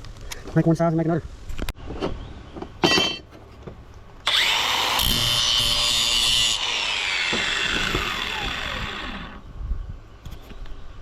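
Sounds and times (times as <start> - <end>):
power tool motor whining: 4.2 - 9.4.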